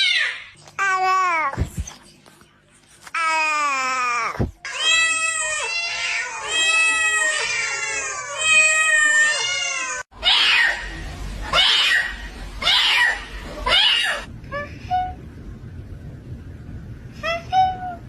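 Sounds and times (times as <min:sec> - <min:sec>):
cat yowling: 0:04.7 - 0:10.9, 0:11.5 - 0:14.3.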